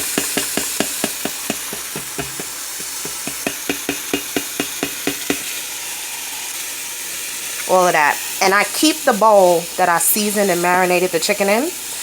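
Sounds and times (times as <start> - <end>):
utensil knocking against pot: 0.0 - 5.5
chicken sizzling in hot oil: 0.0 - 12.0.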